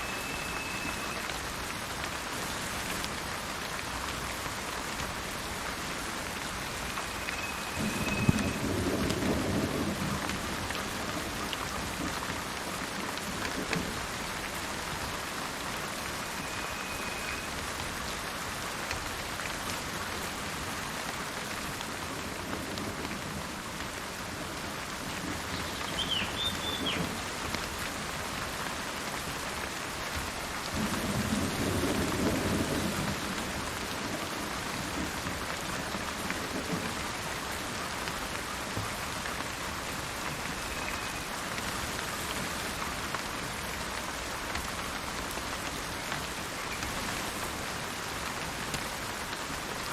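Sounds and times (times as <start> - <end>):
rain falling: 0.0 - 49.9
thunder rolling: 7.8 - 10.5
bird whistling and chirping: 25.6 - 27.0.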